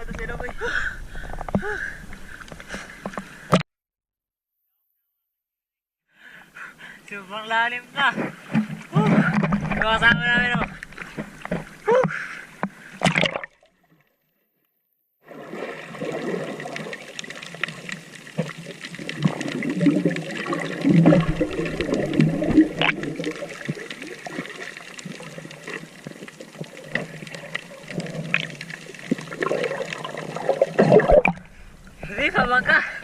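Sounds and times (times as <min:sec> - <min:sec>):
seawater sloshing and splashing: 0:15.2 - 0:31.6.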